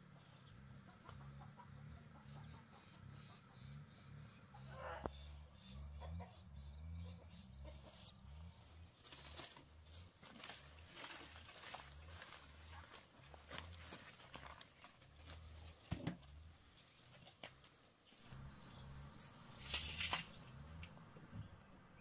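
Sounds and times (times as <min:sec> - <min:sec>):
low uneven rumble: 0:18.2 - 0:22.0.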